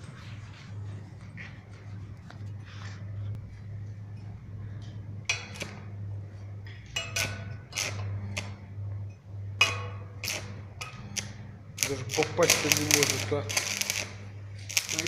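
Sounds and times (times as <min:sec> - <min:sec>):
welding transformer humming: 0:00.0 - 0:15.0
welding arc crackles: 0:05.3 - 0:08.8, 0:09.6 - 0:15.0
electrode tapping on metal: 0:06.6 - 0:15.0.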